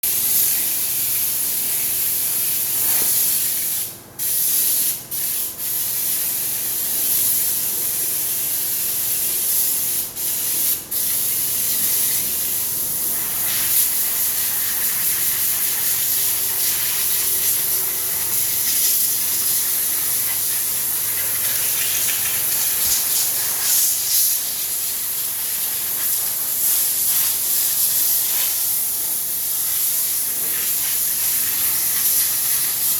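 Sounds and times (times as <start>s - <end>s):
spray jet hissing: 13.0s - 32.9s.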